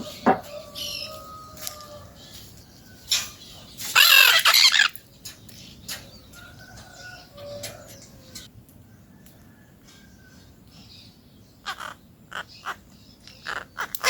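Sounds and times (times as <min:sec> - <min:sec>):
parakeet harsh grating call: 0:03.9 - 0:04.9.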